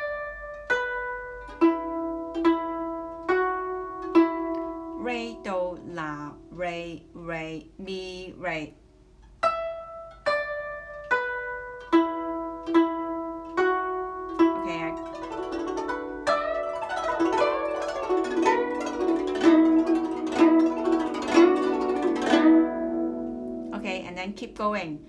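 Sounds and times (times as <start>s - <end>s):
plucked zither notes: 0.0s - 8.6s, 9.2s - 25.0s.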